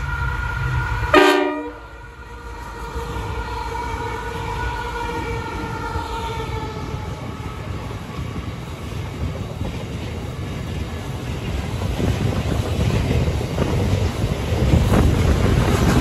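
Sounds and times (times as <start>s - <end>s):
freight wagons rolling on rails: 5.7s - 16.0s.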